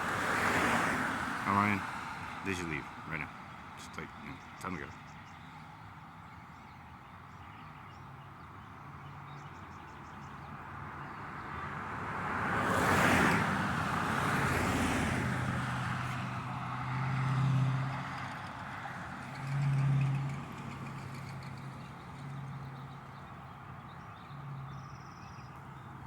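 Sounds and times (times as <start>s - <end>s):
vehicle passing: 0.0s - 5.0s, 11.3s - 24.8s.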